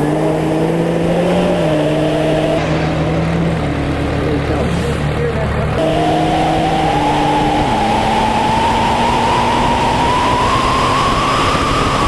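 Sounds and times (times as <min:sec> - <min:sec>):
diesel truck engine running hard: 0:00.0 - 0:12.0
rising engine whine: 0:00.0 - 0:12.0.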